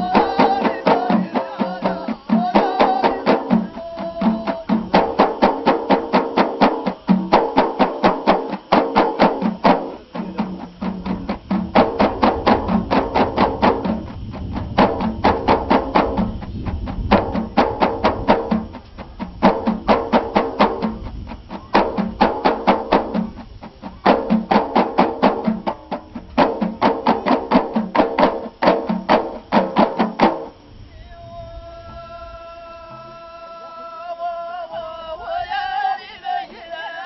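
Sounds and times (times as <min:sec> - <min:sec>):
voices: 0:00.0 - 0:07.2, 0:09.3 - 0:14.2, 0:14.8 - 0:27.8, 0:30.5 - 0:37.0
held chanted song: 0:00.0 - 0:14.2, 0:30.4 - 0:37.0
frame drums beaten: 0:00.0 - 0:31.2.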